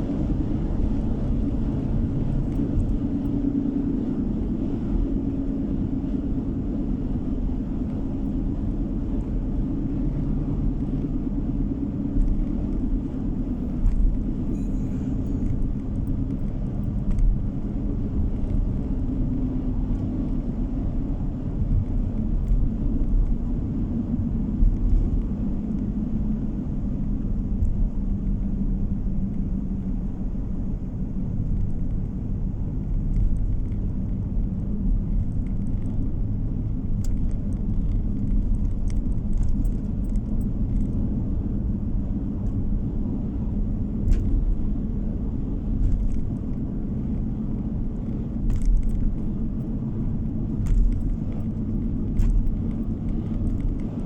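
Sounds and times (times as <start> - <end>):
car engine and tyre noise: 0.0 - 54.0
faint clicks and rattles: 32.8 - 41.3, 45.8 - 54.0.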